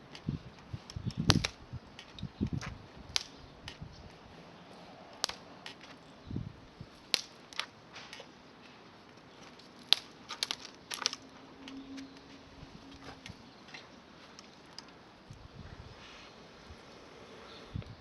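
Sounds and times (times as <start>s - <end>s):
campfire crackling and popping: 0.0s - 4.4s, 5.1s - 6.0s, 6.6s - 11.8s, 13.0s - 15.4s.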